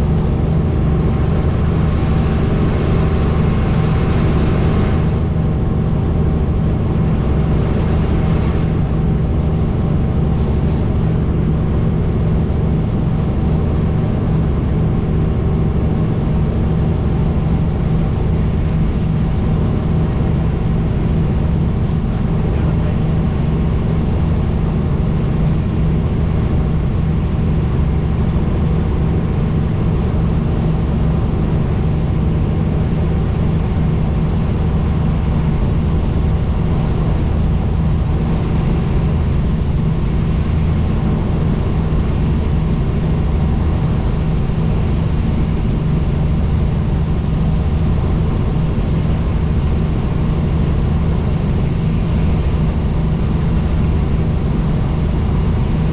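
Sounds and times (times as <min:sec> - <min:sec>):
helicopter rotor and engine drone: 0:00.0 - 0:55.9.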